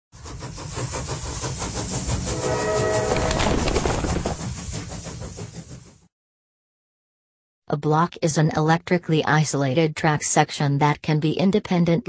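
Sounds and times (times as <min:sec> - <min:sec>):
train wheels clickety-clack: 0:00.2 - 0:06.1
train horn blast: 0:02.2 - 0:03.6.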